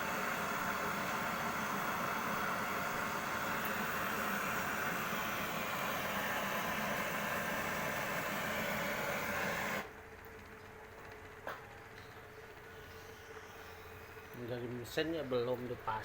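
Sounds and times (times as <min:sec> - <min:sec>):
pressurised gas hissing: 0:00.0 - 0:09.9.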